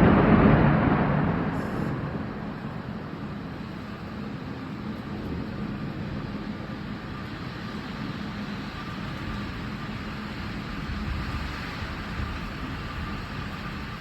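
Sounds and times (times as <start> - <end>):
low rumble: 0.0 - 6.1
heavy rain through window: 0.0 - 14.0.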